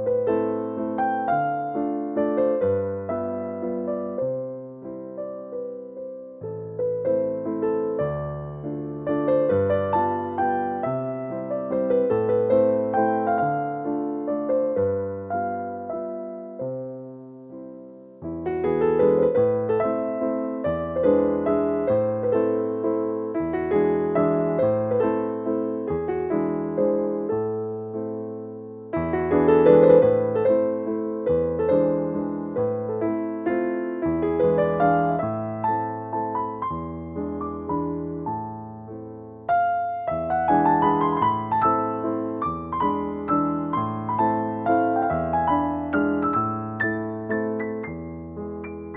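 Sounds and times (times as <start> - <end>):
gentle piano music: 0.0 - 48.9.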